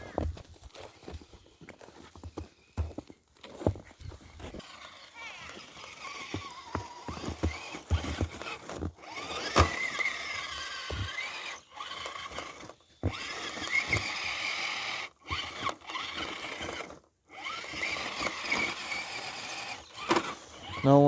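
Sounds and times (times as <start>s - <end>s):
electric motors whining: 4.0s - 21.0s
toy trucks knocking: 4.5s - 21.0s.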